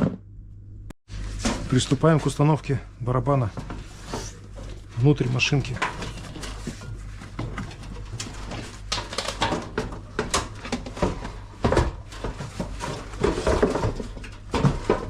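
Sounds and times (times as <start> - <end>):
washing machine drum knocking and scraping: 3.3 - 15.0.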